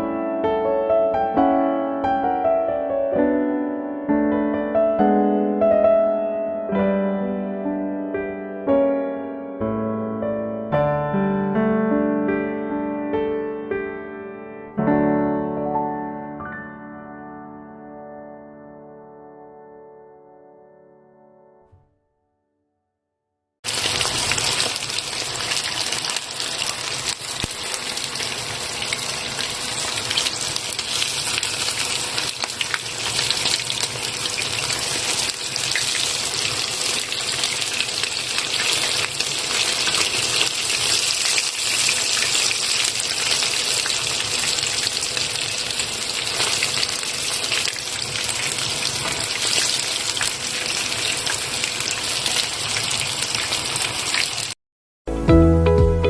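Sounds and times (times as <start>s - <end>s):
chicken sizzling in hot oil: 23.6s - 54.6s.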